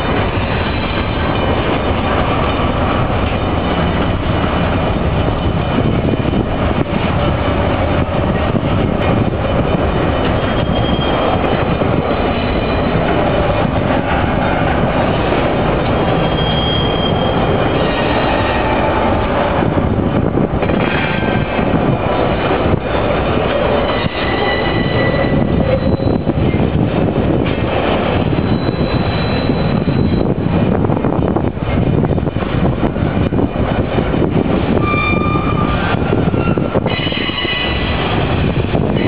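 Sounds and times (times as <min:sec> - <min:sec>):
freight cars rumbling and rattling: 0:00.0 - 0:39.0
faint high wheel squeal: 0:10.4 - 0:11.3, 0:16.2 - 0:18.0, 0:28.4 - 0:30.3, 0:34.8 - 0:35.8.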